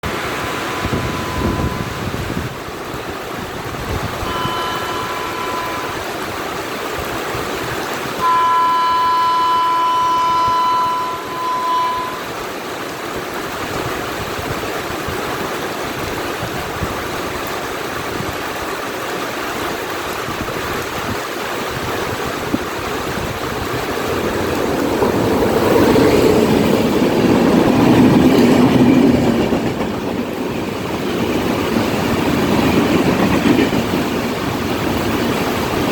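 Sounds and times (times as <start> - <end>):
heavy rain hiss: 0.0 - 35.9
train rumble: 0.0 - 35.9
train horn: 0.5 - 2.4, 4.2 - 6.3, 8.2 - 12.5.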